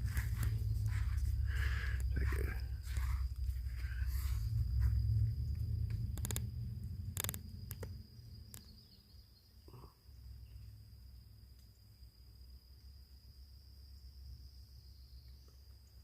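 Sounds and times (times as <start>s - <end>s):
low rumble: 0.0s - 8.8s
insect high-pitched drone: 0.0s - 16.0s
sharp clicks: 5.8s - 8.8s.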